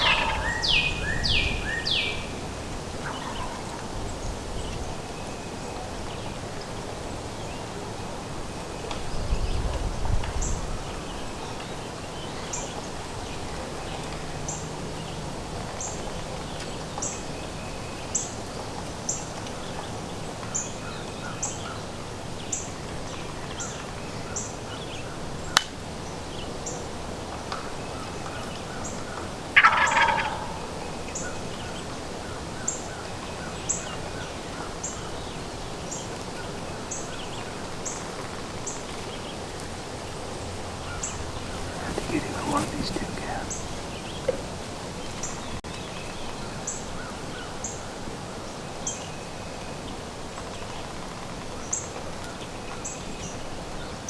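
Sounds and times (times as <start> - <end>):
turkey gobbling: 0.0 - 0.9, 29.6 - 30.7, 41.4 - 43.7
background hiss: 40.9 - 44.8.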